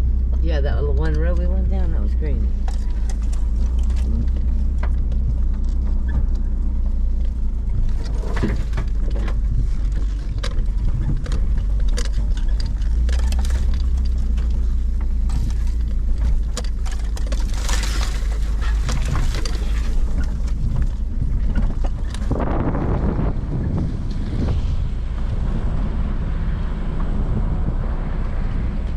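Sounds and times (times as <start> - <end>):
car engine and road rumble: 0.0 - 28.9
knocks and rattles from bumps: 2.4 - 22.8.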